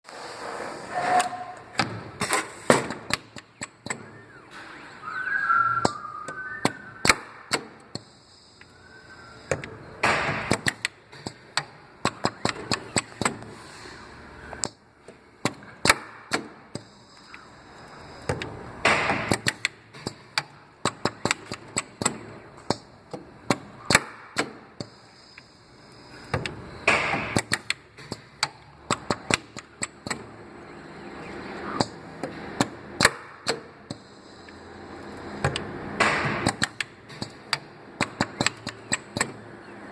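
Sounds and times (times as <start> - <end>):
welding machine clicking and snapping: 1.8 - 4.0, 7.0 - 8.1, 9.5 - 13.5, 15.4 - 24.9, 26.3 - 30.3, 31.8 - 34.0, 35.0 - 39.4.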